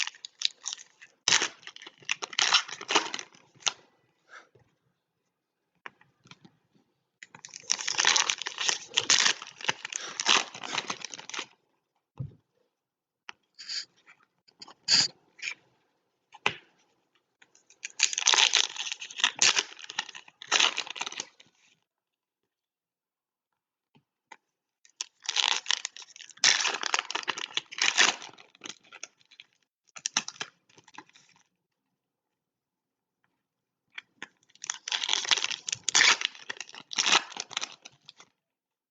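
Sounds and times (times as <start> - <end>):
foil wrappers tearing and crinkling: 7.5 - 11.4, 17.8 - 21.4, 25.1 - 29.1, 34.6 - 38.2.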